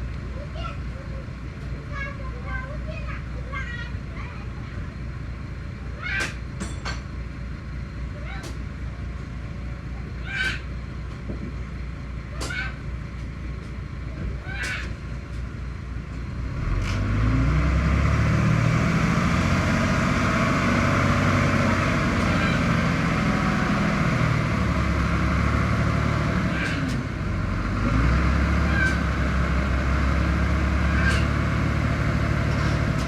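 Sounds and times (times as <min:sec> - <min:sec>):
heavy diesel engine working: 0:00.0 - 0:33.0.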